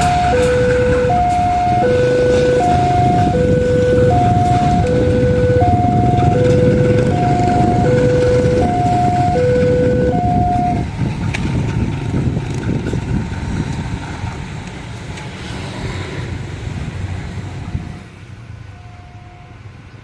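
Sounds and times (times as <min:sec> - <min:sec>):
two-tone level crossing alarm: 0:00.0 - 0:10.9
passing train rumble: 0:00.0 - 0:20.0.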